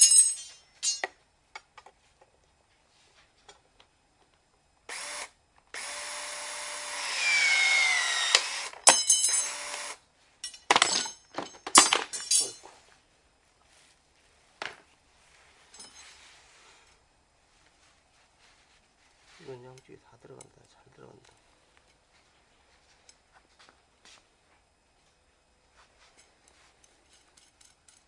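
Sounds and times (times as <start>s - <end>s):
rod cutter motor running: 4.9s - 8.8s, 9.4s - 10.0s.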